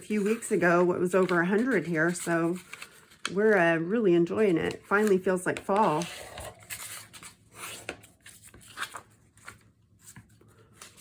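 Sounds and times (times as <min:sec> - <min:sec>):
paper rustling: 0:00.0 - 0:03.6, 0:04.4 - 0:11.0.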